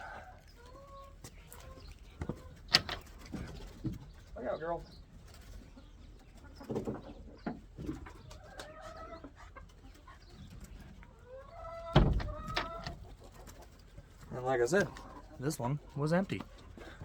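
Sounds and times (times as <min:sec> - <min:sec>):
chickens clucking: 0:00.0 - 0:17.0
loud thump: 0:12.0 - 0:12.5.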